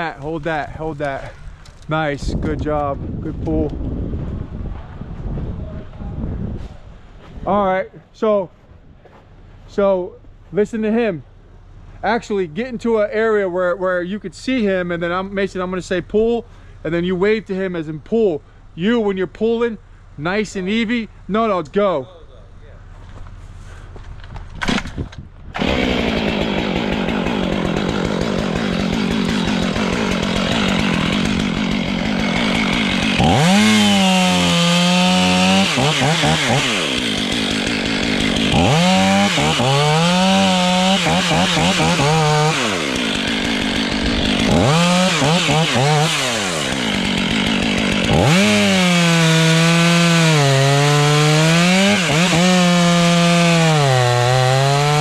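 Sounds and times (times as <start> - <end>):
chainsaw cutting wood: 24.4 - 55.0.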